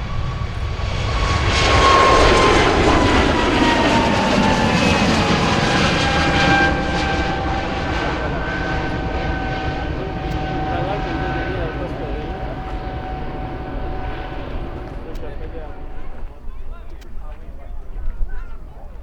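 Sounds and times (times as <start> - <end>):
jet whine falling in pitch: 0.0 - 17.3
airliner engine roar: 0.0 - 18.7.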